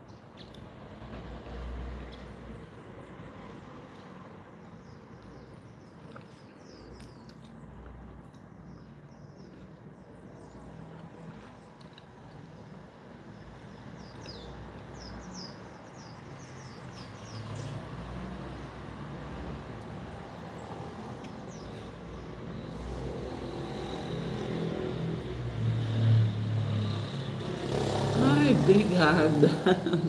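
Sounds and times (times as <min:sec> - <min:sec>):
passing road vehicle hum: 0:00.0 - 0:06.8, 0:07.4 - 0:30.0
small birds chirping: 0:03.8 - 0:19.2, 0:19.8 - 0:22.8.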